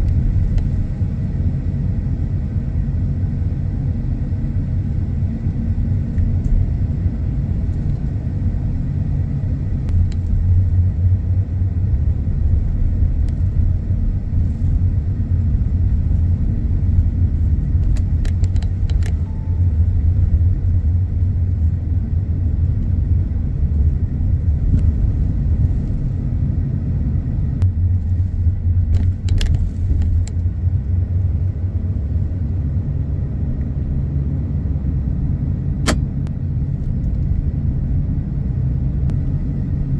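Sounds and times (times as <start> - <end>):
car road and engine rumble: 0.0 - 39.9
brief clicks: 35.8 - 36.3.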